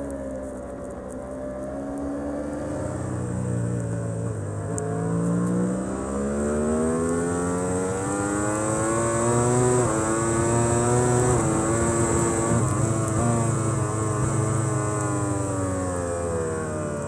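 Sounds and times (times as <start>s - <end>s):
racing motorcycle engine revving: 4.2s - 16.6s.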